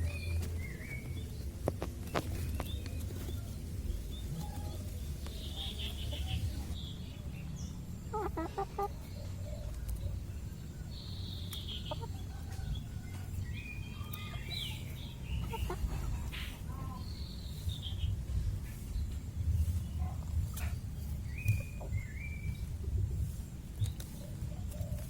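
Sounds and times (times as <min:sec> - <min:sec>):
chickens clucking: 0:00.0 - 0:25.0
steady low rumble: 0:00.0 - 0:25.0.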